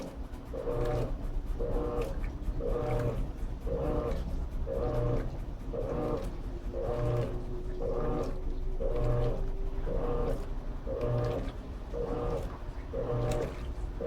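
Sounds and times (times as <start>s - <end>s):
washing machine agitating: 0.0s - 14.0s.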